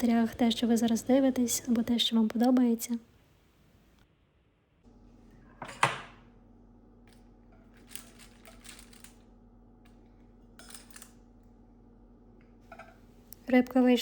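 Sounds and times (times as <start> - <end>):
dishes and cutlery clinking: 5.6 - 6.2.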